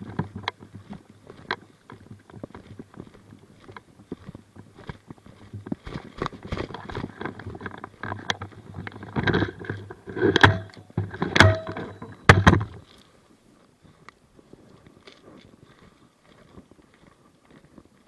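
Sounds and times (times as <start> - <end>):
rustling: 0.0 - 18.0
sharp knocks: 10.3 - 12.7.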